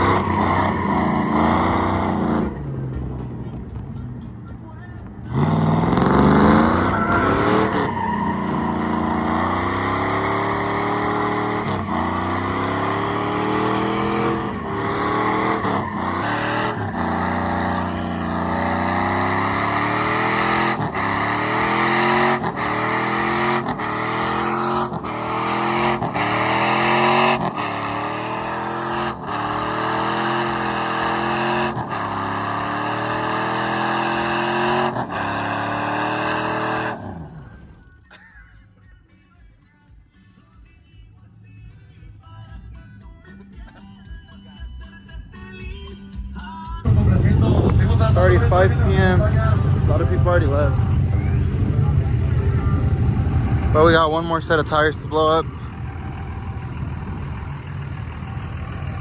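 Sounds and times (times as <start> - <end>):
tires spinning hiss: 0.0 - 2.6, 5.3 - 37.5
truck engine revving: 0.0 - 37.9, 46.8 - 59.0.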